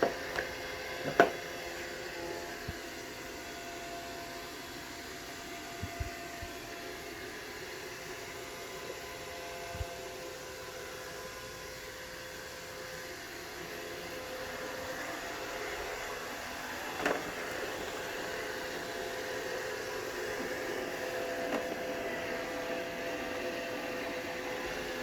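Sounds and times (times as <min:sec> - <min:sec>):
robot vacuum motor whirring: 0:13.9 - 0:25.0.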